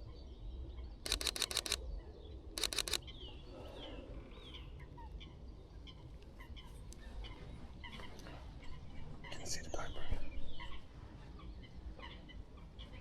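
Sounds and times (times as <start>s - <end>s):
faint bird calls: 1.0s - 13.0s
camera shutter bursts: 1.1s - 1.8s, 2.6s - 3.0s.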